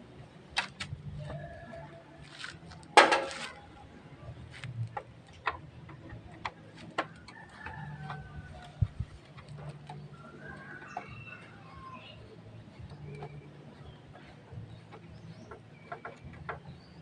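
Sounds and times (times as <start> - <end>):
hand tools clattering: 2.9 - 3.6.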